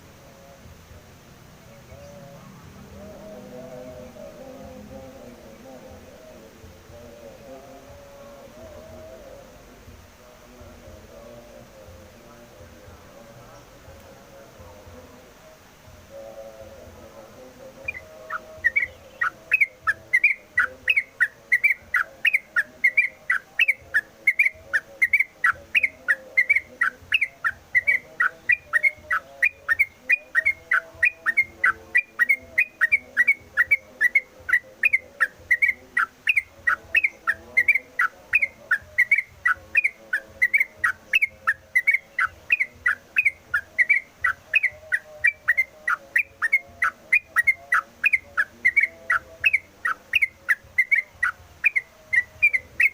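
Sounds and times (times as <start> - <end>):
bird whistling song: 17.8 - 52.9.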